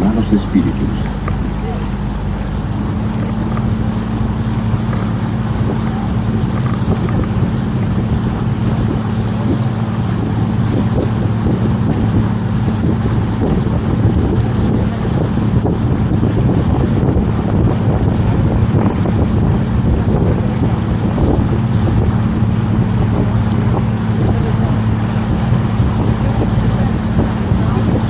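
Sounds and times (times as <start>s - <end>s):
boat motor humming: 0.0s - 28.0s
wind rumbling on microphone: 0.0s - 28.0s.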